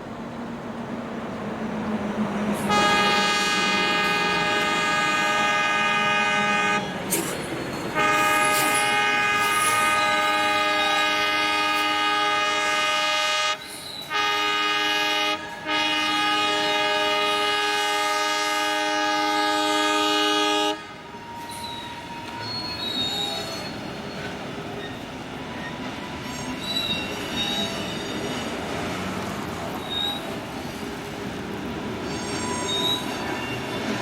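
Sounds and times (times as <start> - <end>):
freight train rolling by: 0.0 - 34.0
locomotive horn blasts: 2.7 - 7.0, 8.0 - 22.4
wheel squeal: 13.6 - 14.1, 21.2 - 28.9, 29.7 - 30.5, 32.0 - 34.0.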